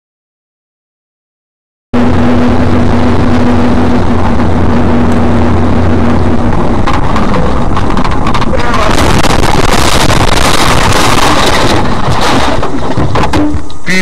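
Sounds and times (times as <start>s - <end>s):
road and wind noise in car: 2.0s - 13.9s
low engine drone: 2.0s - 14.0s
clicks and knocks: 6.4s - 13.8s.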